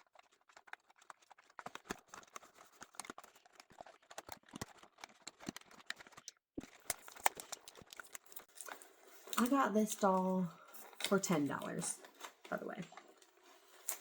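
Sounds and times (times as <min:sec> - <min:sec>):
packaging being opened by hand: 0:00.0 - 0:09.6.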